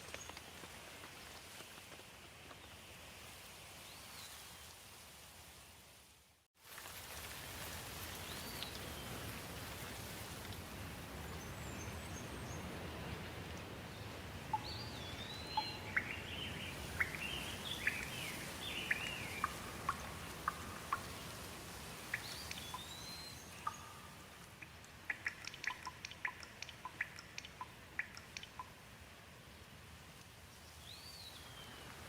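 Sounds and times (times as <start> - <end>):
light rain: 0.0 - 32.0
water dripping: 13.1 - 28.9.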